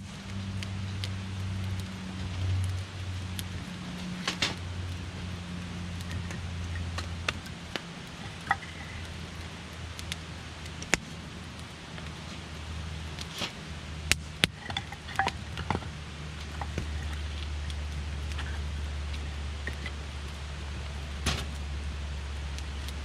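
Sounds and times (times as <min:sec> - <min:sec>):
campfire crackling: 0:00.0 - 0:23.0
low hum: 0:00.0 - 0:23.0
wood popping and snapping: 0:02.5 - 0:05.0, 0:05.9 - 0:11.1, 0:13.2 - 0:20.4, 0:21.2 - 0:21.7.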